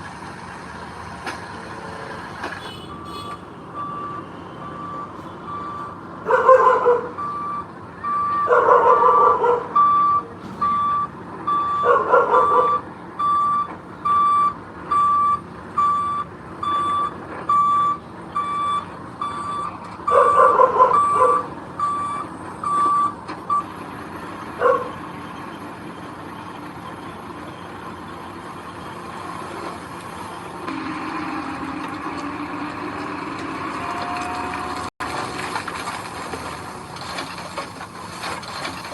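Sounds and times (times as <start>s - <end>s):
diesel engine running: 0.0s - 38.9s
reversing alarm beeping: 3.8s - 6.0s, 7.1s - 23.7s.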